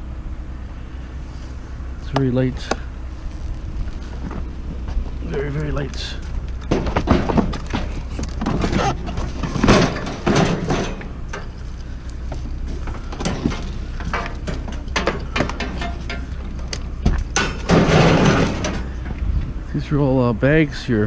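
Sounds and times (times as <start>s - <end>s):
steady low hum: 0.0s - 21.0s
scrap metal knocks and clunks: 4.1s - 19.6s.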